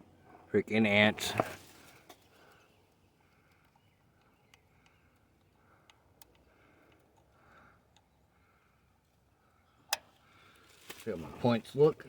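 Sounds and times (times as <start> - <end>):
faint clicks: 3.2 - 8.1.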